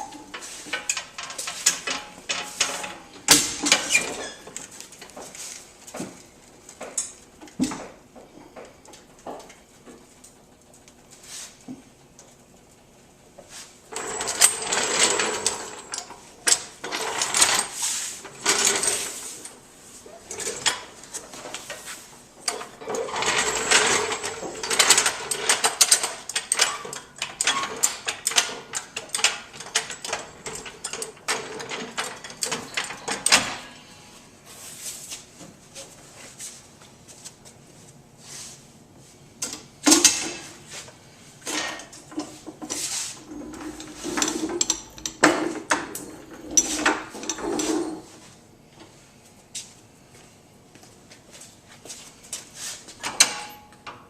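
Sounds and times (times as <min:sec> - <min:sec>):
metallic clicking and clanking: 0:00.1 - 0:05.1, 0:43.4 - 0:47.8.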